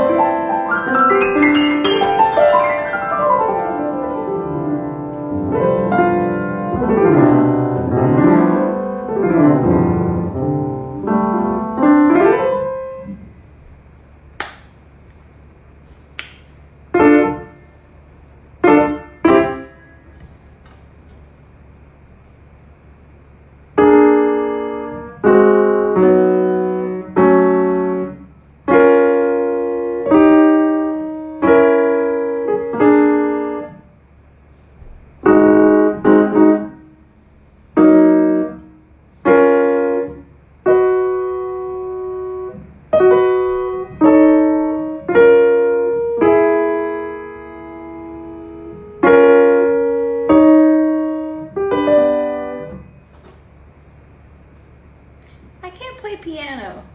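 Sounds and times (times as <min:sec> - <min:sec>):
piano chords played slowly: 0:00.0 - 0:13.3, 0:23.8 - 0:33.8, 0:37.7 - 0:53.0.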